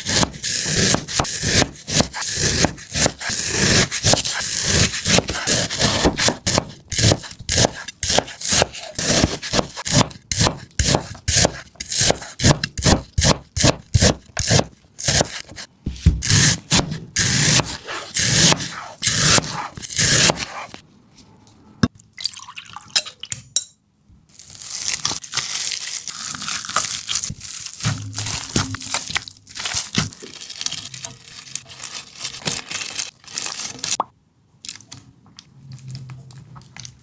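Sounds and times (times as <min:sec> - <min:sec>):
knife slicing watermelon: 0:00.0 - 0:20.8.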